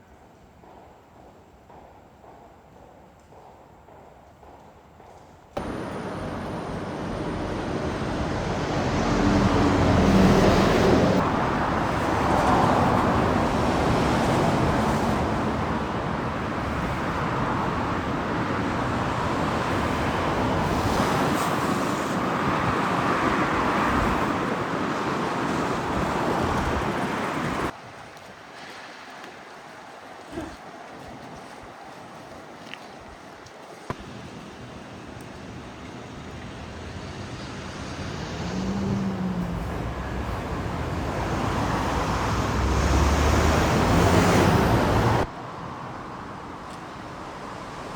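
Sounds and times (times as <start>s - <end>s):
loud rumbling vehicle noise: 5.6s - 27.7s, 34.0s - 45.3s.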